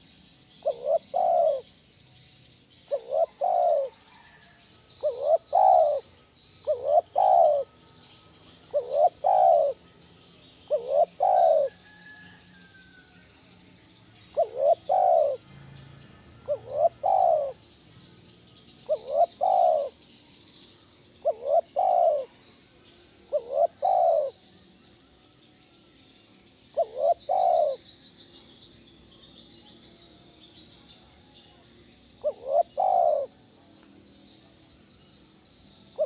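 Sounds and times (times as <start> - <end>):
small birds chirping: 0.0 - 36.0
dove cooing: 0.6 - 1.7, 2.9 - 7.7, 8.6 - 9.8, 10.7 - 12.3, 14.2 - 15.5, 16.2 - 17.6, 18.8 - 20.0, 21.2 - 22.5, 23.3 - 24.4, 26.7 - 27.9, 32.2 - 33.4.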